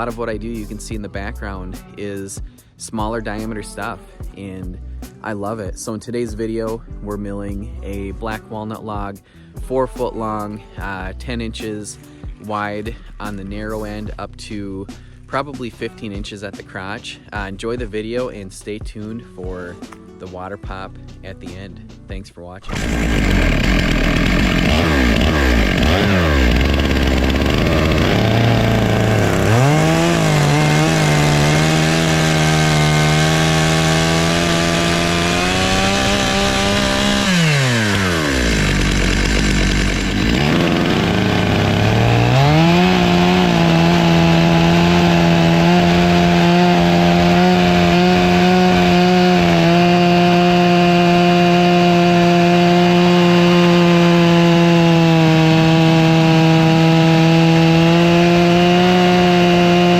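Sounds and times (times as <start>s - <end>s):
chainsaw cutting log: 0.0s - 1.6s, 22.6s - 59.9s.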